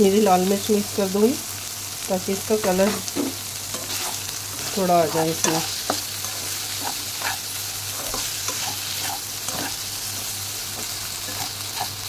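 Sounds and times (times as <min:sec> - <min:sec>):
cheese sizzling in butter: 0:00.0 - 0:12.0
spatula scraping a pan: 0:02.6 - 0:12.0.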